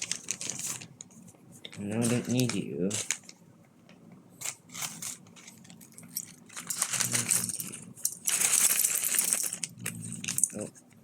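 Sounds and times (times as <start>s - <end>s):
plastic bag crinkling: 0.0s - 3.4s, 4.4s - 10.7s
plastic pieces clicking and clattering: 4.4s - 10.7s.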